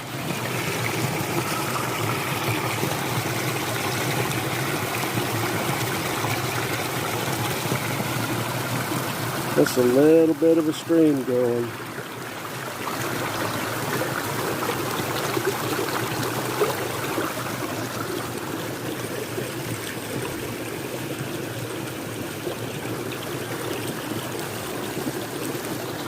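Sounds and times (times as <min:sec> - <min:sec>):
stream rushing over small waterfall: 0:00.0 - 0:26.0.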